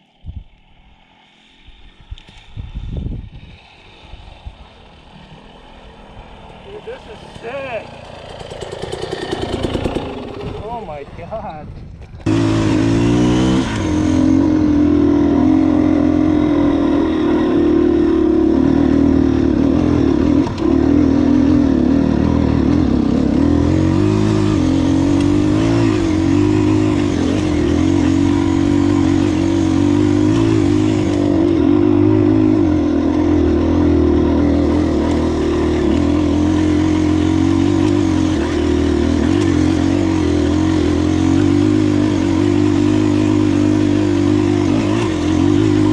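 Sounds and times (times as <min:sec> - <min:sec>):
dirt bike engine running: 0:00.4 - 0:45.9.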